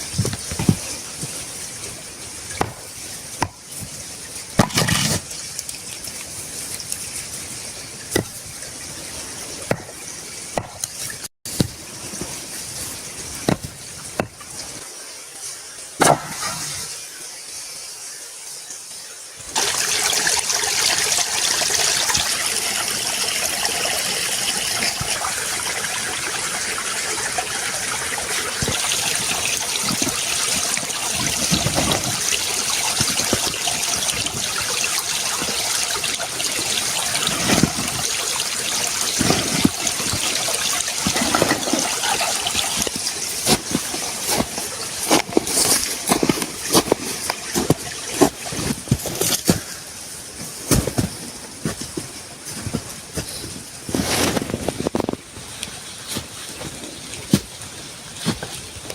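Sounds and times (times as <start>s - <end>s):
knocks and splashes: 0.0s - 1.7s, 2.3s - 5.8s, 8.0s - 14.8s, 26.4s - 49.8s
running water: 0.0s - 58.9s.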